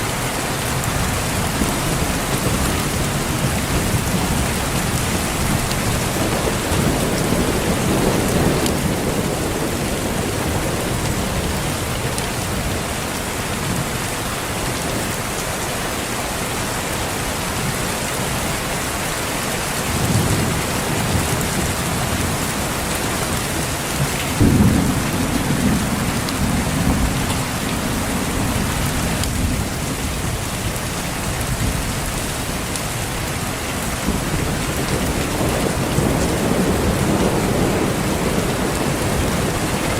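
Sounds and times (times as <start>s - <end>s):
steady rain: 0.0s - 39.9s
thunder rumbling: 0.8s - 13.0s, 19.8s - 32.3s, 33.0s - 39.9s.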